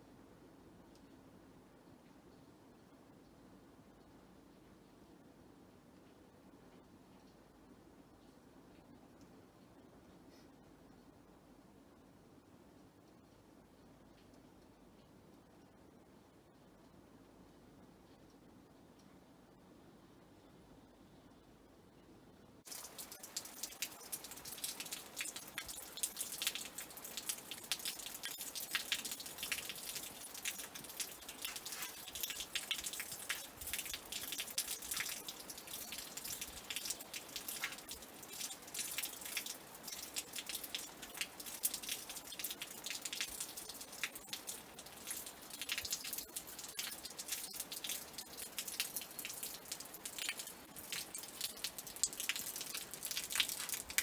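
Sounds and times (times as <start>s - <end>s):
rain patter: 22.6s - 54.0s.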